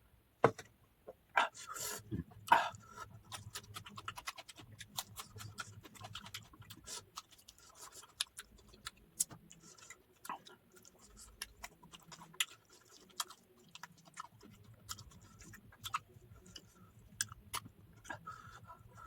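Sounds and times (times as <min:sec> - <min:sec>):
person chewing with wet mouth clicks: 0:03.3 - 0:18.2.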